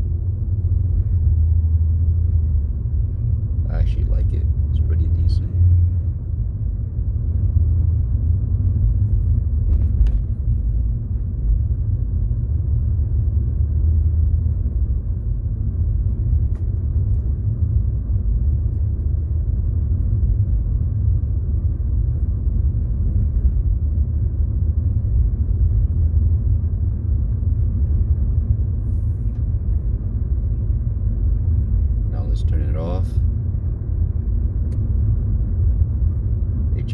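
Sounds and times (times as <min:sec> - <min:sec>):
car engine and road noise: 0:00.0 - 0:36.9.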